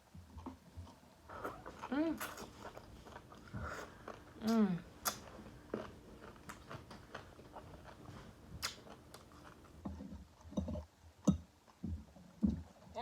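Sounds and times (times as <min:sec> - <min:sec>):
chewing food: 0:00.1 - 0:12.8
wet mouth smacks and clicks: 0:05.0 - 0:05.2, 0:08.6 - 0:08.8.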